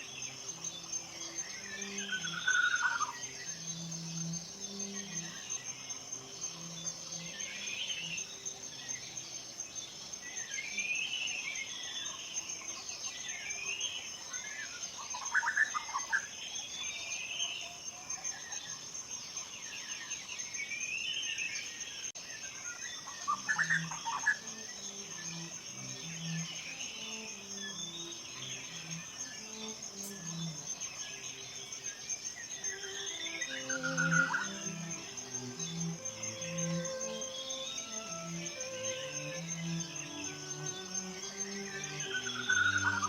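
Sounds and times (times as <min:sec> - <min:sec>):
pulsing insect trill: 0:00.0 - 0:43.0
songbirds singing: 0:00.0 - 0:43.0
sharp bird calls: 0:32.6 - 0:43.0.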